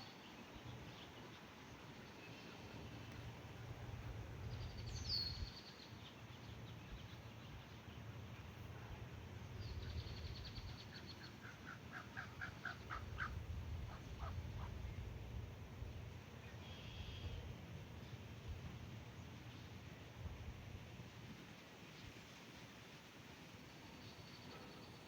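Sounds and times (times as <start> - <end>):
low steady rumble: 12.9 - 21.3.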